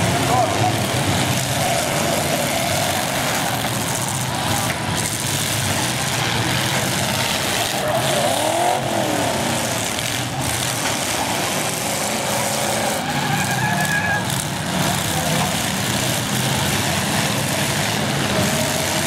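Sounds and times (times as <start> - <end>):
engine rev rising and falling: 0.0 - 19.0
engines running and revving: 0.0 - 19.0
brief high squeal: 13.2 - 14.3.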